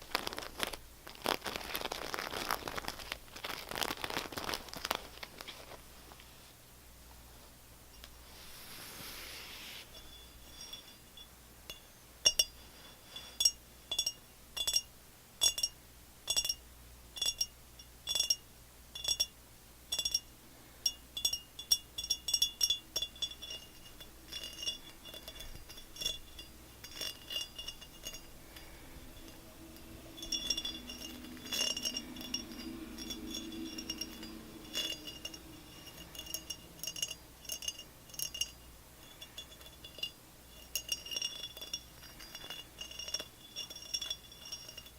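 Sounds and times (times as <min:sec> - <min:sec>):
tapping on glass: 0:13.4 - 0:16.6, 0:17.2 - 0:18.4, 0:19.0 - 0:20.3, 0:20.9 - 0:44.9.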